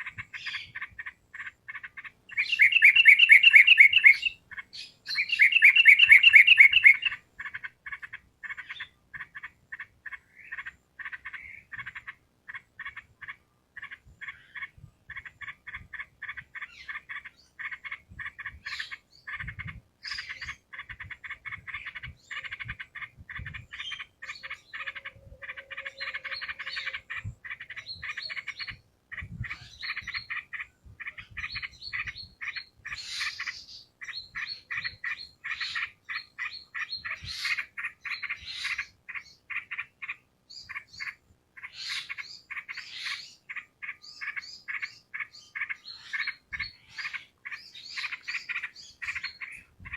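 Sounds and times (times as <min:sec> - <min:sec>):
bulbul singing: 0:01.8 - 0:09.5.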